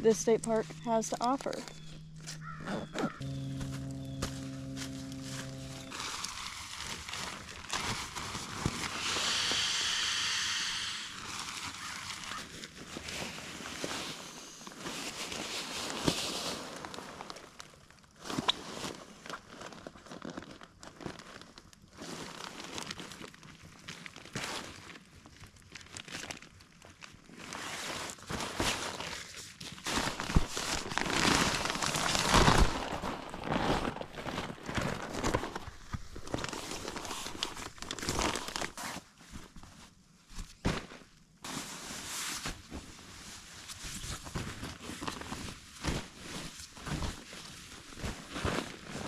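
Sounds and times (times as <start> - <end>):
camping gear crinkling and rustling: 0.1 - 9.0, 11.2 - 49.0.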